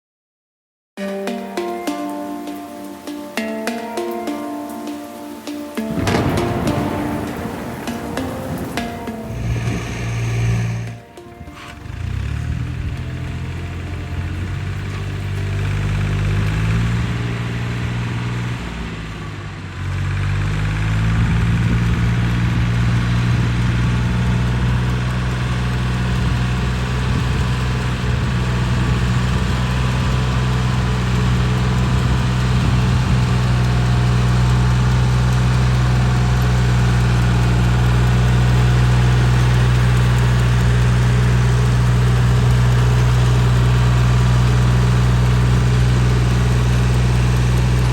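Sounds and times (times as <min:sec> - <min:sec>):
tiller engine running: 0:05.2 - 0:47.9.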